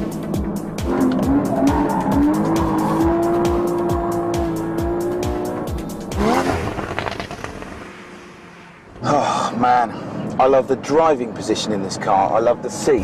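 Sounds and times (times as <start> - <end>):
music with steady beat: 0.0 - 6.8
car engine revving high: 0.0 - 9.0.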